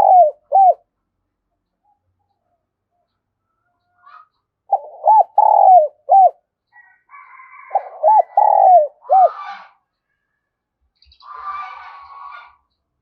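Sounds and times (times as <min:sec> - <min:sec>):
dove cooing: 0:00.0 - 0:00.8, 0:04.7 - 0:06.4, 0:07.6 - 0:09.7.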